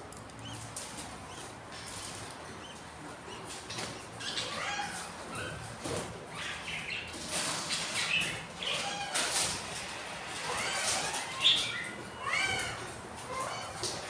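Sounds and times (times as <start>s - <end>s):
budgerigars chirping: 0.4s - 5.6s, 6.3s - 9.0s, 10.5s - 12.8s.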